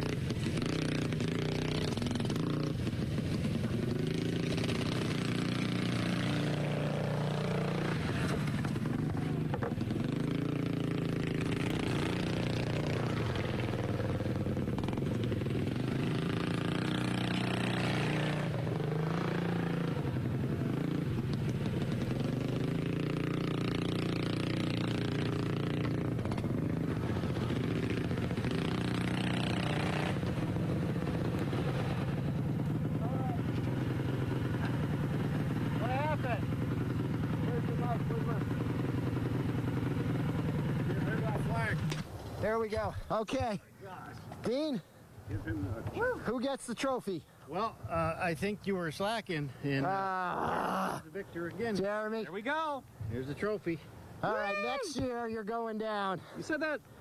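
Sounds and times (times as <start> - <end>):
racing lawnmower engines: 0.0 - 42.9.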